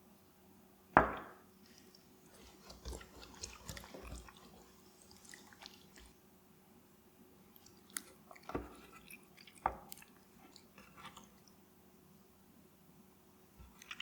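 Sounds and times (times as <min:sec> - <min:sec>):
raw chicken squishing: 0:01.6 - 0:06.2, 0:07.6 - 0:11.5.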